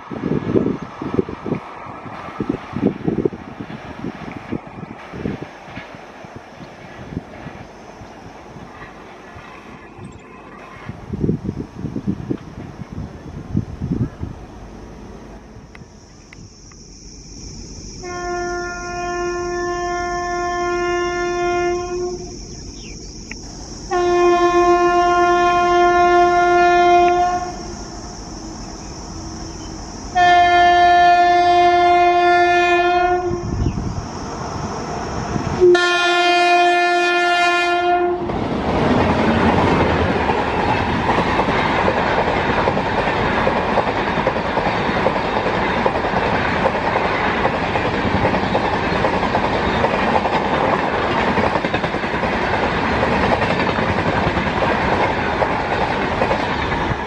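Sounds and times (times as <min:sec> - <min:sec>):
train wheels clattering past: 0:01.0 - 0:11.2, 0:34.3 - 0:57.0
train horn blasts: 0:18.0 - 0:22.4, 0:23.9 - 0:27.7, 0:29.4 - 0:33.7, 0:35.6 - 0:38.3.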